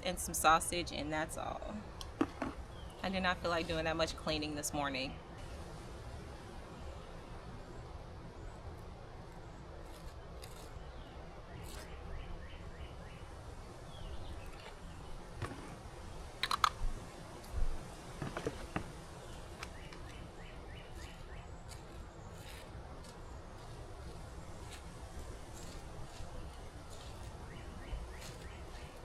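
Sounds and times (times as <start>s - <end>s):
low background noise: 0.0s - 29.0s
sharp clicks and clinks: 16.4s - 16.8s
small bird chirping: 19.2s - 24.8s, 25.5s - 29.0s.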